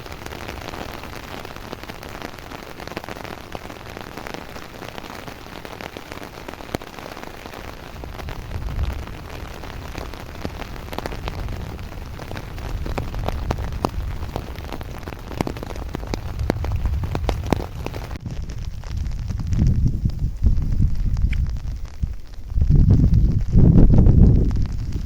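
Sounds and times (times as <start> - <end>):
heavy raindrops tapping: 0.0 - 25.0
steady rain: 0.0 - 25.0
low rumble: 15.8 - 25.0.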